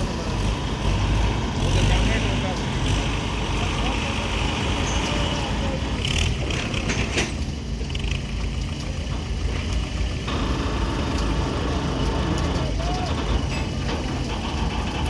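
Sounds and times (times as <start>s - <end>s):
tractor diesel engine running: 0.0s - 15.0s
hissing or rattling bursts: 10.2s - 15.0s.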